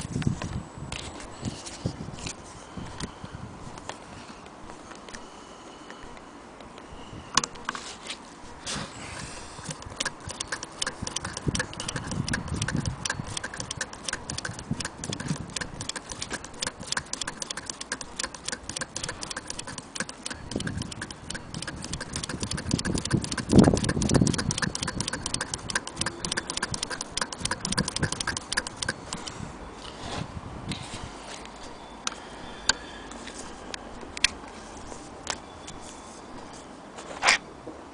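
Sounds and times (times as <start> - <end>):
sewing machine clicking: 9.6 - 29.0.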